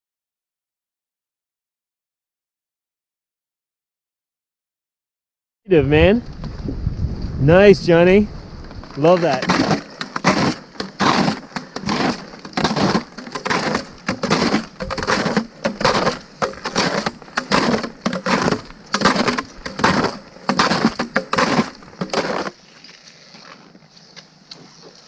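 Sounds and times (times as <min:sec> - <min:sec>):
boot footsteps crunching in snow: 0:08.6 - 0:25.0.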